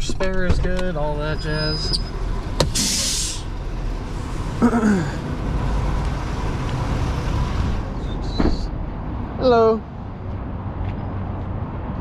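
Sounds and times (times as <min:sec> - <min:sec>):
truck engine idling: 0:00.8 - 0:10.5
air brakes hissing: 0:02.6 - 0:03.5.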